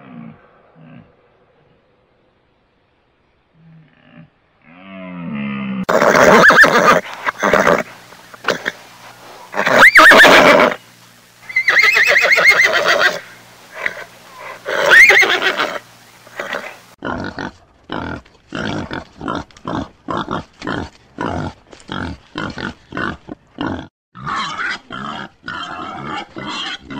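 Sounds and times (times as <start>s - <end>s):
horse whinnying: 5.9s - 8.8s, 9.5s - 10.8s, 11.5s - 16.8s
pig grunting: 16.4s - 26.9s.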